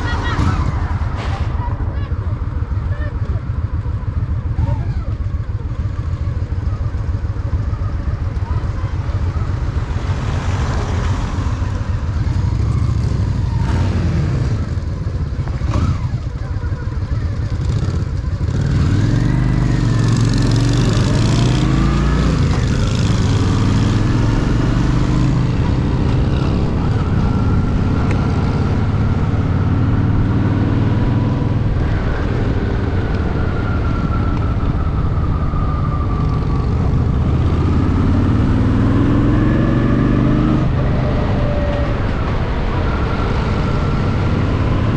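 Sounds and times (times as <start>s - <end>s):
motorcycle engine running: 0.0s - 34.1s.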